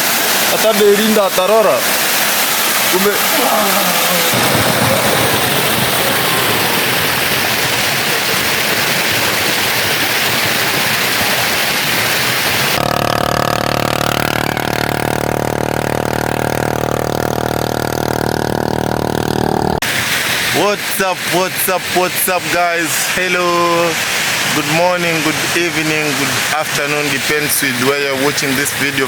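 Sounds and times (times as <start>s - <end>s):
steady rushing noise: 0.0s - 29.0s
engine idling: 11.8s - 19.8s.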